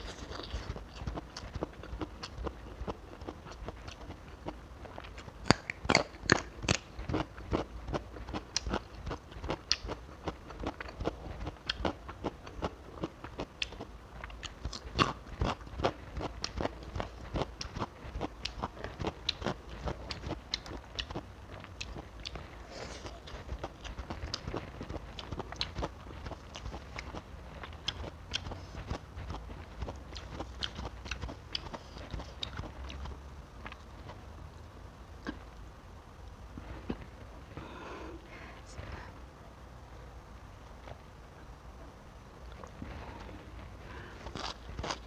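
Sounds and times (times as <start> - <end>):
crunchy bites and chewing: 0.0 - 34.2, 43.9 - 45.0.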